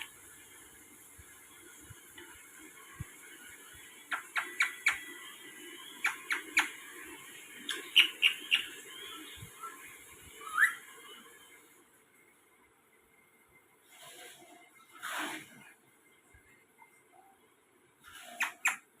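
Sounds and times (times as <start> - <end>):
parrot calling: 4.1 - 5.1, 6.0 - 6.8, 7.7 - 8.8, 10.4 - 10.8, 18.1 - 18.9.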